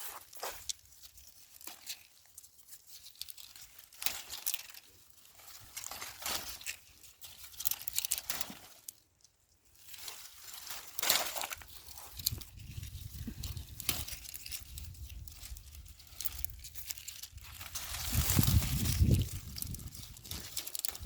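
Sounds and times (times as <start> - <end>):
dry vines rustling and crackling: 0.0 - 21.0.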